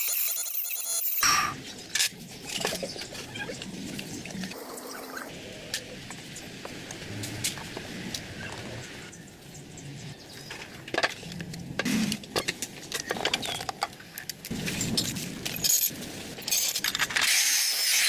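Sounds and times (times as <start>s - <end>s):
small hard parts clicking and clinking: 10.9s - 17.4s.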